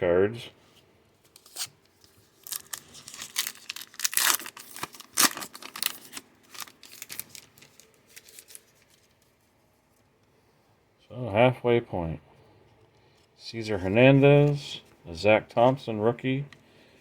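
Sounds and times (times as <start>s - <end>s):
foil wrapper tearing and crinkling: 1.4s - 9.2s.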